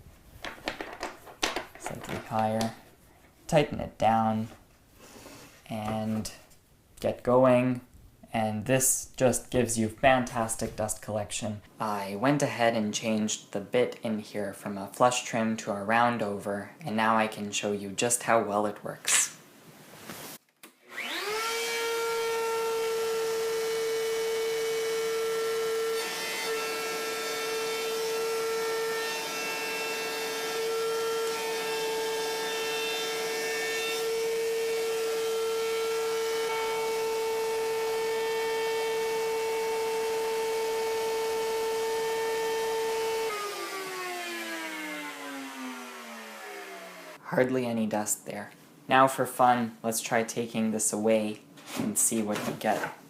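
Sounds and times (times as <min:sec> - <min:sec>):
router whining cutting wood: 0:20.9 - 0:47.2.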